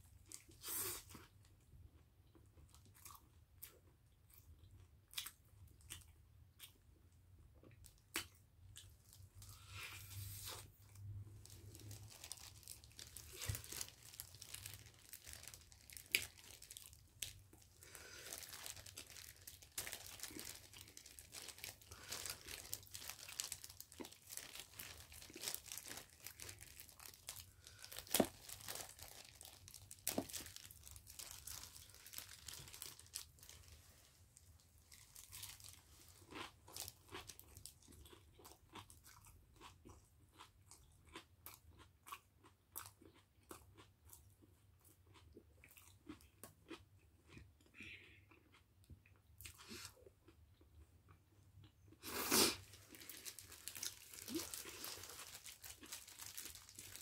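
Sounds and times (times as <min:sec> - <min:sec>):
plastic gloves rustling: 0:09.5 - 0:36.2, 0:52.5 - 0:57.0.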